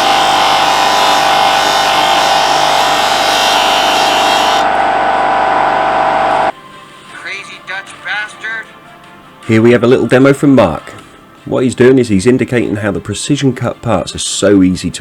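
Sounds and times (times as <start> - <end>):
electric disc sander whining: 0.0 - 6.5.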